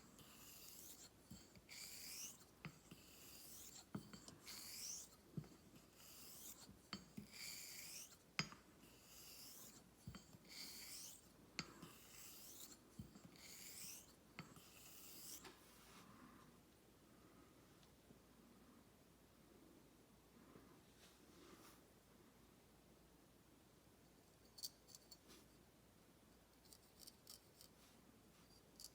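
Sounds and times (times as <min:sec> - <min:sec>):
razor scraping on whetstone: 0:00.0 - 0:15.5.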